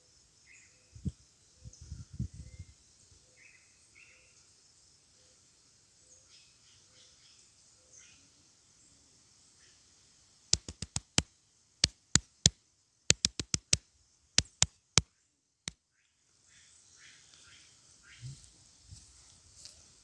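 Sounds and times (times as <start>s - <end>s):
sharp knocks or clicks: 10.6s - 11.2s, 11.9s - 12.5s, 13.1s - 13.8s, 14.4s - 14.7s.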